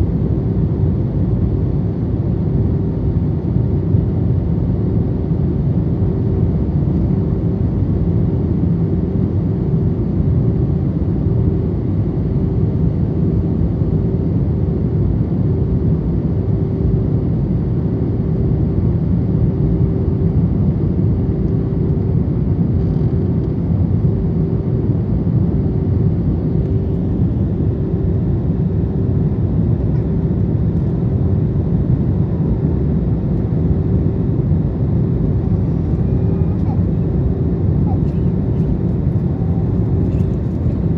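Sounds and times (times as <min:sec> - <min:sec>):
airliner cabin engine rumble: 0:00.0 - 0:40.9
faint steady hum: 0:16.9 - 0:40.9.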